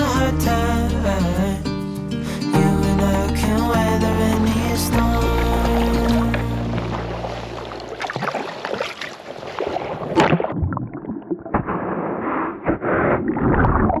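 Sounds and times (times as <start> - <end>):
water sloshing: 2.5 - 11.9
paddle splashes: 6.2 - 10.6.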